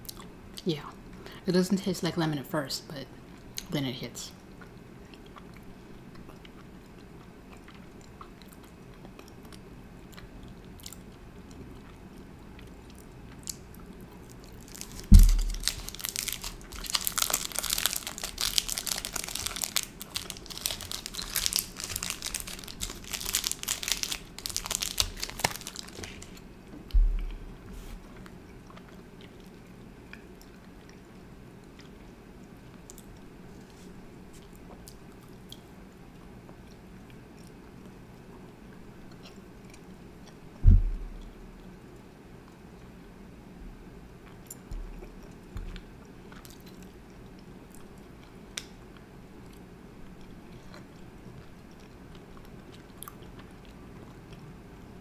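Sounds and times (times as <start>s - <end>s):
biting and chewing candy: 12.6s - 26.4s
thump: 15.1s - 15.4s, 27.0s - 27.3s, 40.6s - 41.1s.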